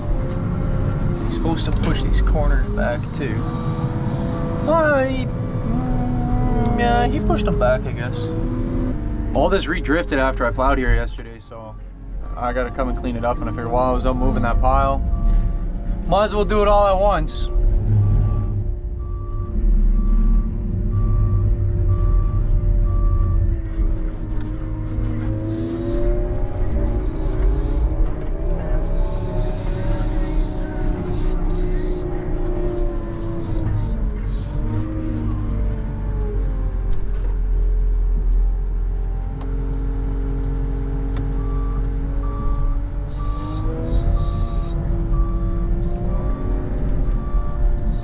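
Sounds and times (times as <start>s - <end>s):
truck engine running: 0.0s - 48.0s
reversing alarm beeping: 9.4s - 23.9s, 41.2s - 48.0s.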